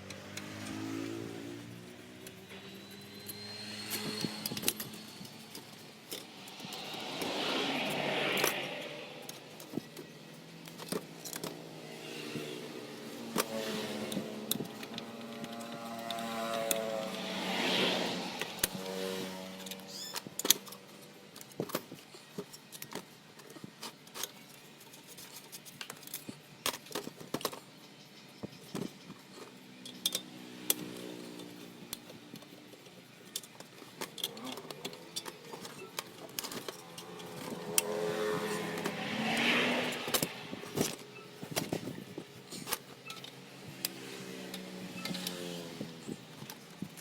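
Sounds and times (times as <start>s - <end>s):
vehicle engine passing by: 0.0s - 9.9s, 11.5s - 20.1s, 36.3s - 42.8s, 43.6s - 46.8s
small metal tools clinking: 2.2s - 7.0s.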